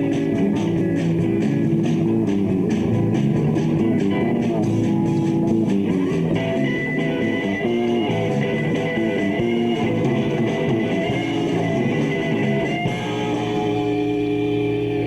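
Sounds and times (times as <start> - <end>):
bass guitar: 0.0 - 15.0
electric guitars: 0.0 - 15.0
rock band playing: 0.0 - 15.0.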